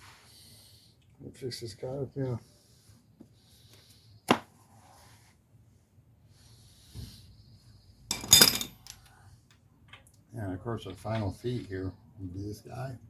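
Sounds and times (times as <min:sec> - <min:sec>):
quiet breathing: 0:00.0 - 0:08.1, 0:08.9 - 0:09.8
metal clanks rattling: 0:08.1 - 0:08.9.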